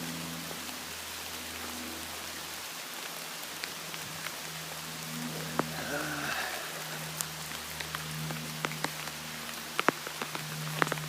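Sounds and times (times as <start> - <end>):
steady rain falling: 0.0 - 11.0
sharp drops ticking: 5.0 - 11.0.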